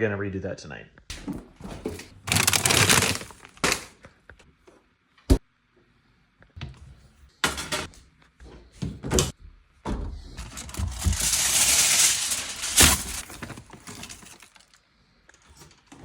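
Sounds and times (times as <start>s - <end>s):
kitchen knocks and clatters: 6.6s - 8.0s, 8.8s - 14.4s.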